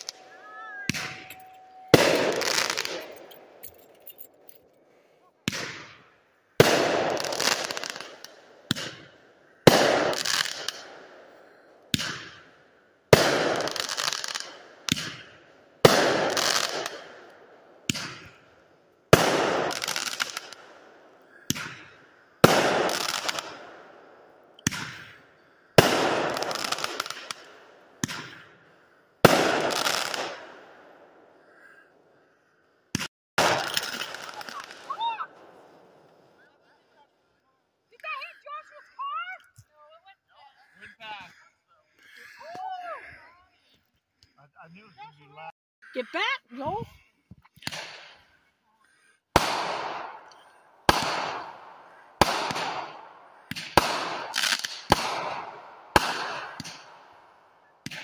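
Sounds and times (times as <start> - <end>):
loud firework bangs: 0.8 - 3.3, 5.4 - 11.3, 11.9 - 12.5, 13.1 - 18.5, 19.1 - 28.6, 29.2 - 31.6, 32.9 - 36.4, 49.3 - 57.1
firework launch pops: 11.9 - 12.4, 14.9 - 17.0, 17.9 - 18.4, 24.6 - 25.2, 32.9 - 34.8, 47.6 - 48.2, 52.2 - 56.9.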